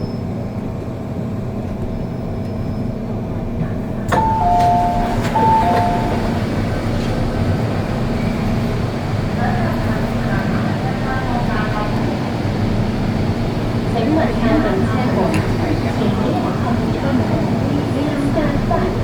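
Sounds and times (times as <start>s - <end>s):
train rumble and hum: 0.0s - 19.0s
two-note falling chime: 4.2s - 6.4s
click: 15.3s - 15.5s.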